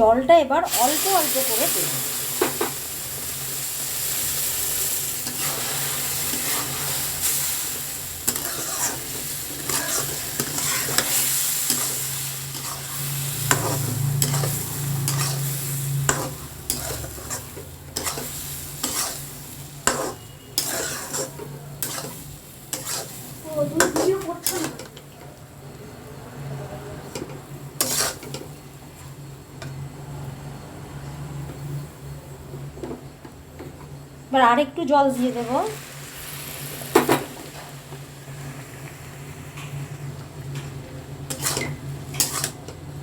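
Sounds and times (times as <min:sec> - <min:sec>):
steady sizzle: 0:00.0 - 0:43.0
spatula scraping and knocking a pan: 0:08.3 - 0:24.9, 0:27.8 - 0:28.4, 0:41.3 - 0:42.6.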